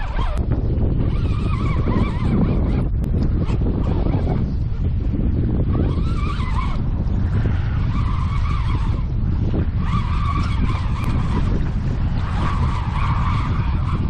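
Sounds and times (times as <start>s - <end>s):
squeal: 0.0s - 0.4s, 1.0s - 4.4s, 5.7s - 6.8s, 7.9s - 9.0s, 9.8s - 11.6s, 12.2s - 14.0s
wind rumble on microphone: 0.0s - 14.0s.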